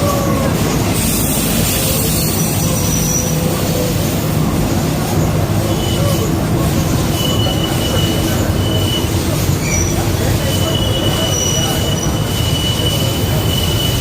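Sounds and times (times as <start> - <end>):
wheels squealing: 0.0 - 4.1, 5.6 - 14.0
train wheels rumbling on rails: 0.0 - 14.0.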